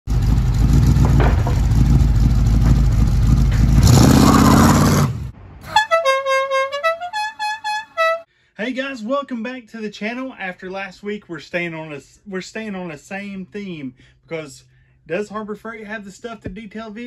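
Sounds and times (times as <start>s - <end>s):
car engine rumbling: 0.1s - 6.1s
horn-like tune: 5.6s - 8.3s.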